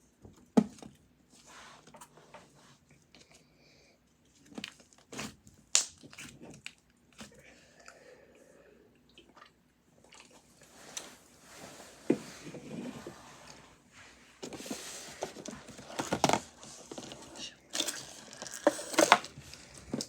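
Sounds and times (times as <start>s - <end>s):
packaging rustling: 14.4s - 20.0s.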